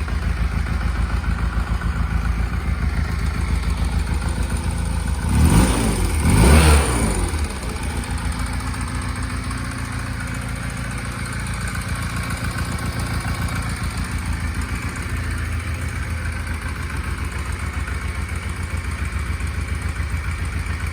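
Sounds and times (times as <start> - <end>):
motorcycle engine revving and idling: 0.0 - 20.9.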